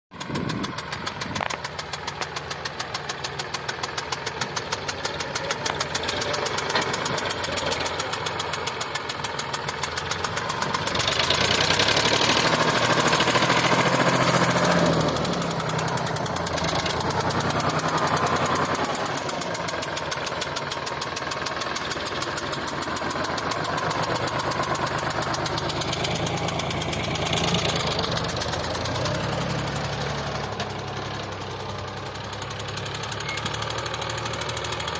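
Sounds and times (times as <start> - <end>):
tractor diesel engine running: 0.1 - 34.9.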